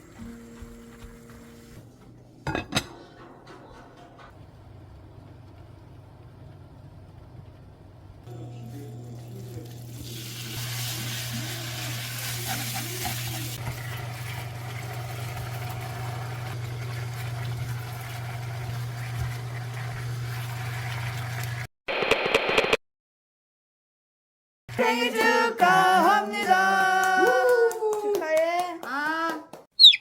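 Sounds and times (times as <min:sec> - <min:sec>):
meat sizzling in a pan: 0:09.4 - 0:21.6.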